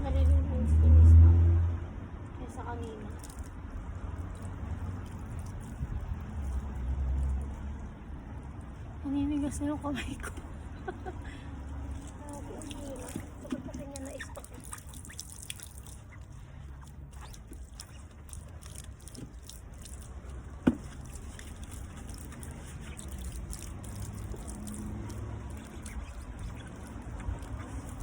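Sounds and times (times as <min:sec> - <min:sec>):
water dripping: 0:00.1 - 0:28.0
scouring pad scrubbing rim: 0:11.9 - 0:28.0.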